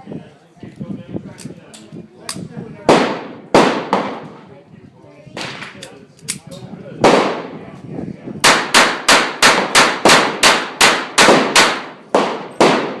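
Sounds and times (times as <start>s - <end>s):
pistol shots: 2.9s - 4.2s, 7.0s - 7.5s, 8.4s - 13.0s.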